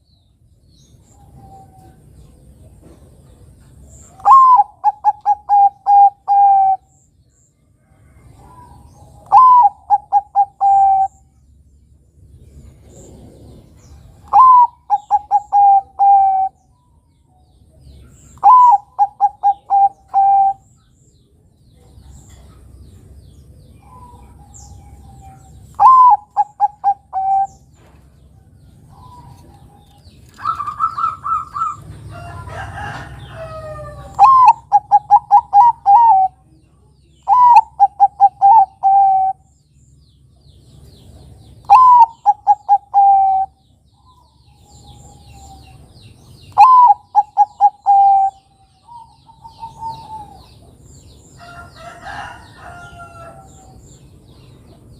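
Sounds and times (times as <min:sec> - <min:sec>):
dove cooing: 0:04.1 - 0:07.0, 0:08.4 - 0:11.2, 0:12.9 - 0:16.6, 0:18.4 - 0:20.7, 0:23.8 - 0:27.8, 0:28.9 - 0:36.5, 0:37.2 - 0:39.4, 0:41.6 - 0:45.9, 0:46.5 - 0:50.7.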